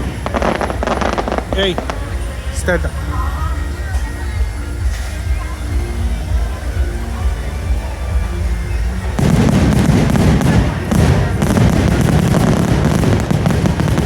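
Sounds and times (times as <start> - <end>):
fireworks bangs and crackles: 0.0 - 3.0, 8.1 - 14.0
music playing: 0.0 - 14.0.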